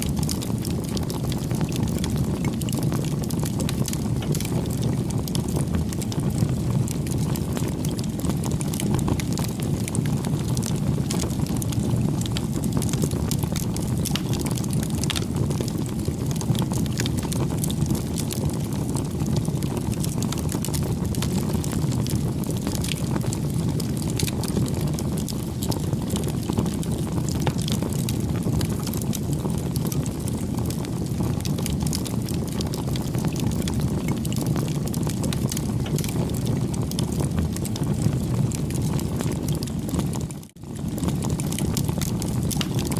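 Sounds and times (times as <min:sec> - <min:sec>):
campfire rumbling and crackling: 0:00.0 - 0:42.9.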